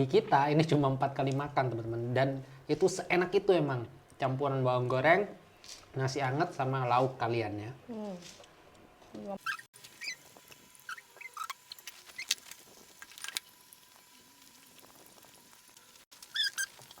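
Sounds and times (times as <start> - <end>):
high squeaks while chewing: 9.4 - 12.4, 16.2 - 17.0.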